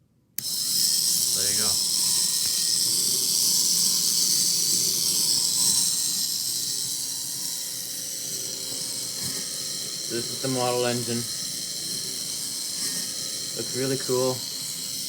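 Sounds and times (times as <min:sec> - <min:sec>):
small electric motor whirring: 0:00.4 - 0:15.0.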